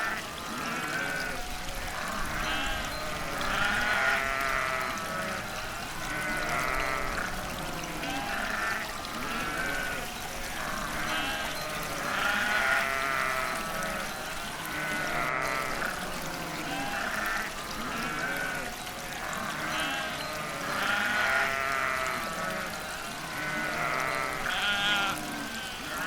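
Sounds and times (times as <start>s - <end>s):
livestock bleating: 0.0s - 1.4s, 2.0s - 5.4s, 6.0s - 10.0s, 10.6s - 14.0s, 14.7s - 22.7s, 23.3s - 26.0s.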